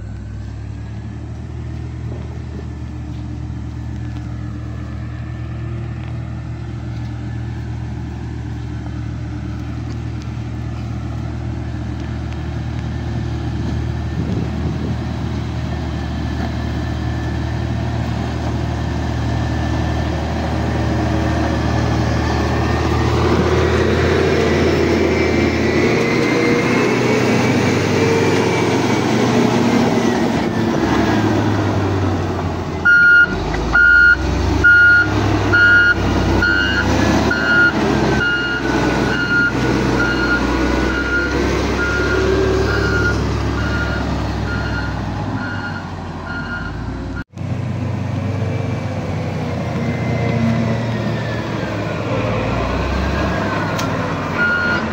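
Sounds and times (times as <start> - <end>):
diesel truck engine running: 0.0 - 54.9
reversing alarm beeping: 32.8 - 47.2, 54.4 - 54.9.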